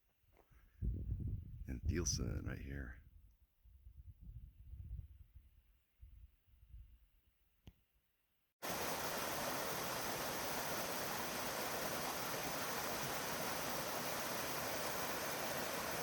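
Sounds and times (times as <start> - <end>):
steady rushing hiss: 8.6 - 16.0.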